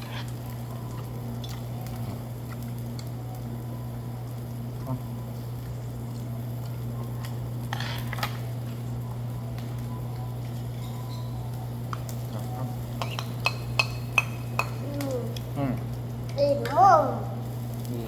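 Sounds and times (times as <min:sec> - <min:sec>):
tableware clinking: 0:13.0 - 0:14.8.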